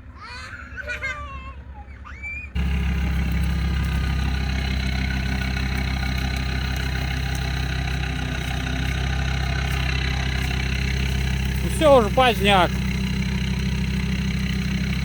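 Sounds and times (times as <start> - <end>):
off-road vehicle engine running: 2.6 - 15.0.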